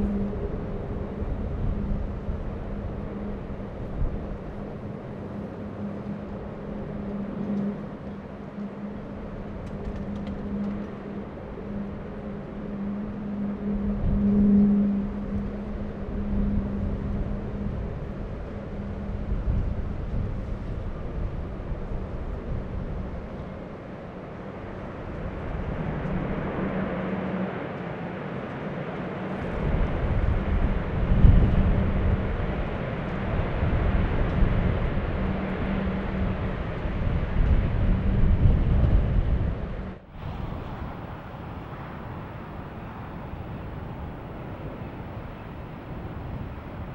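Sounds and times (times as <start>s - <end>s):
jet engines roaring: 23.7s - 46.9s.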